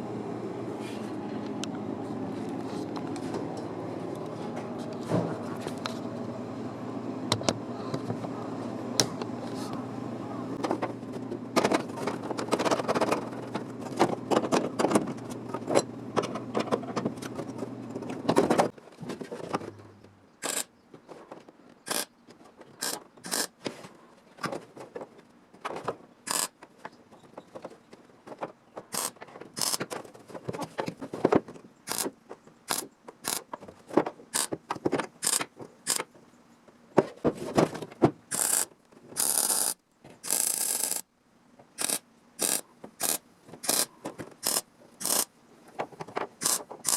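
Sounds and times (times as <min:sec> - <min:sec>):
machine humming: 0:00.0 - 0:12.5
tools and metal clicking: 0:22.8 - 0:23.5, 0:41.8 - 0:45.3, 0:46.4 - 0:46.9
short harsh bursts: 0:38.3 - 0:41.1, 0:41.8 - 0:45.3, 0:46.4 - 0:46.9.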